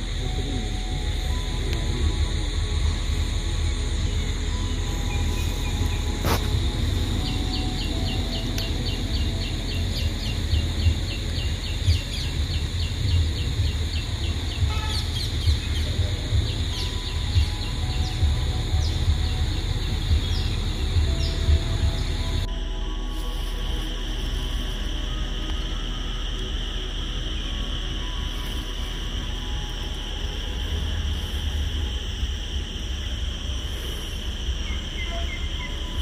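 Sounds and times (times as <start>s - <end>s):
low microphone rumble: 0.0s - 36.0s
bird chirping: 4.6s - 22.4s, 34.6s - 36.0s.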